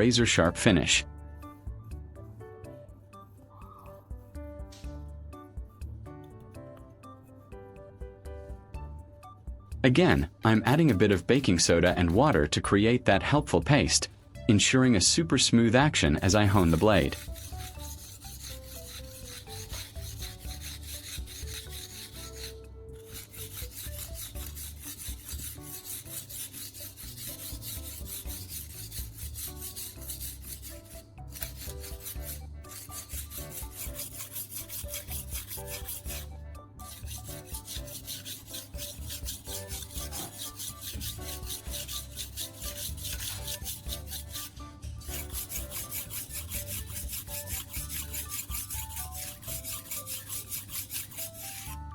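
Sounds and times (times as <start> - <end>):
knife scraping on whetstone: 10.5 - 12.5, 16.2 - 51.9.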